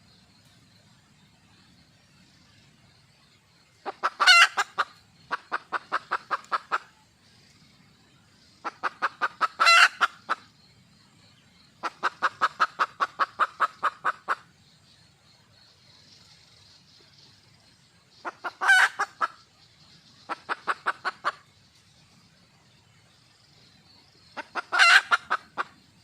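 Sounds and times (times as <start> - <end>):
hen clucking: 3.8 - 6.9, 8.6 - 10.5, 11.8 - 14.5, 18.2 - 19.4, 20.3 - 21.4, 24.4 - 25.8.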